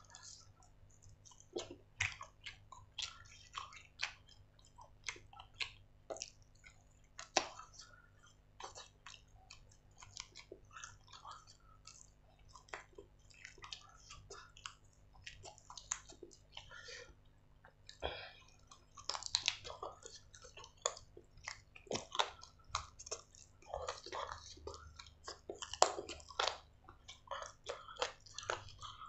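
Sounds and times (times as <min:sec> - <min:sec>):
man chewing chicken: 0:00.0 - 0:29.0
wet lip smacks and clicks: 0:00.0 - 0:29.0.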